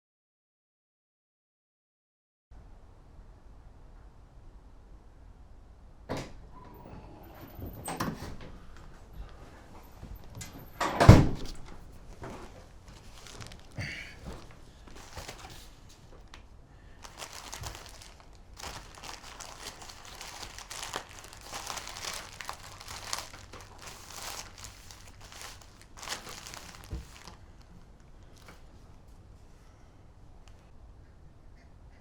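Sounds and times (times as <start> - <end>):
packaging crinkling: 11.5 - 16.3, 16.9 - 28.9.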